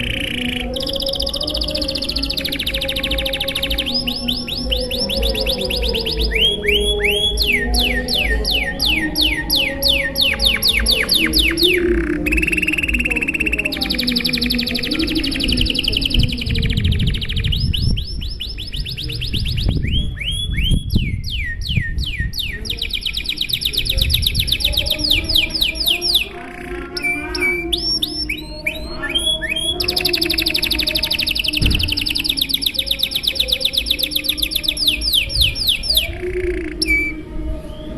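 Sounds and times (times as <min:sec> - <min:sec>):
canary singing trills: 0:00.0 - 0:37.9.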